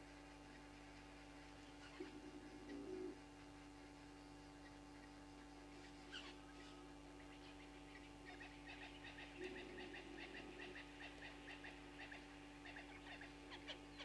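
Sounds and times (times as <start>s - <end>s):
rapid high bird calls: 4.5s - 14.0s.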